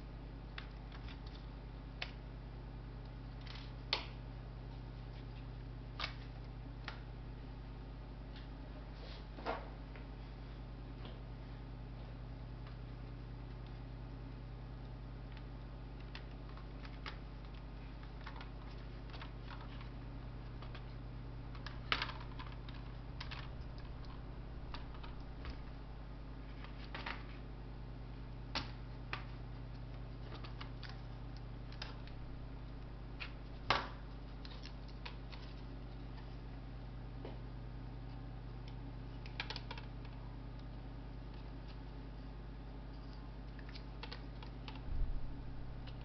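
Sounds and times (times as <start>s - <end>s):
electrical hum: 0.0s - 46.0s
laptop parts clicking and tapping: 20.5s - 25.6s, 38.7s - 40.7s.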